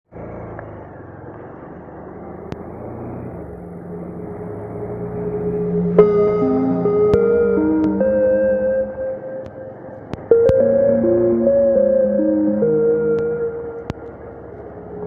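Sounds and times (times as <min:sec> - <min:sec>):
low rumbling noise: 0:00.7 - 0:15.0
ambient music notes: 0:03.5 - 0:15.0.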